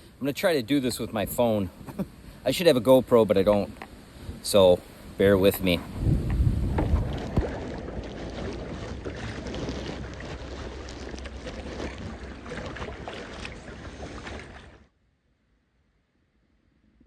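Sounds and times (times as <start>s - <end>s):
water splashing around kayak: 2.8s - 14.9s
low wind rumble: 3.2s - 14.9s.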